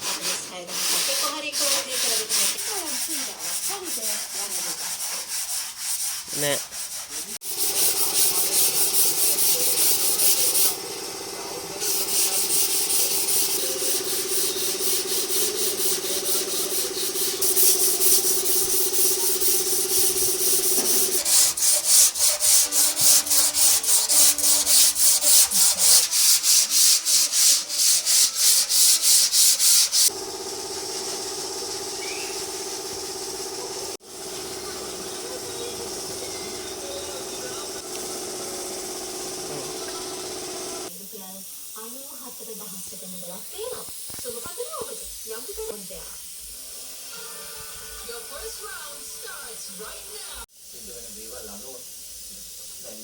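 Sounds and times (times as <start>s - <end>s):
sandpaper rubbing: 0.0s - 30.2s.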